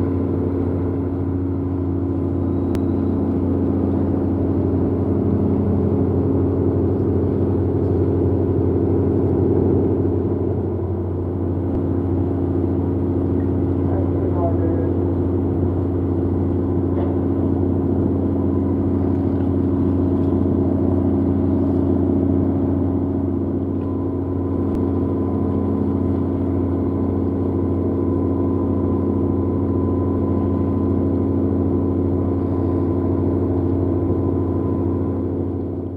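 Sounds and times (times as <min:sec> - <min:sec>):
ship diesel engine droning: 0:00.0 - 0:35.9
faint high whine: 0:02.2 - 0:04.4.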